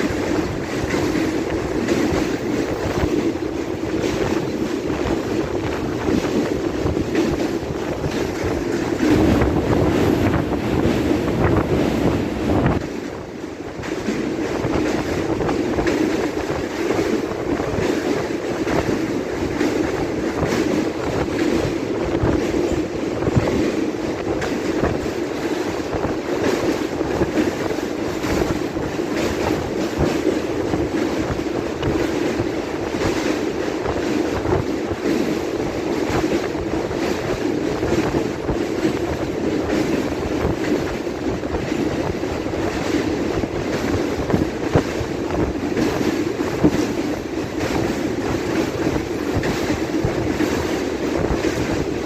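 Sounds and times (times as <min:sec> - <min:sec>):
train wheels clattering over rail joints: 0:00.0 - 0:52.0
wind rushing: 0:00.0 - 0:52.0.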